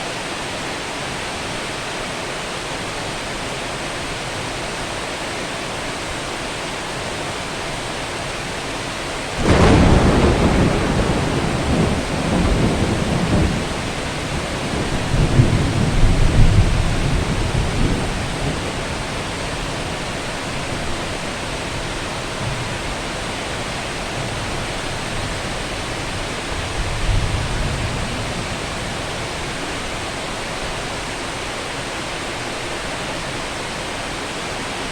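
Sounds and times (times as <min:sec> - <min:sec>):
heavy rain hissing: 0:00.0 - 0:34.9
thunderclap and rumbling: 0:09.4 - 0:29.5.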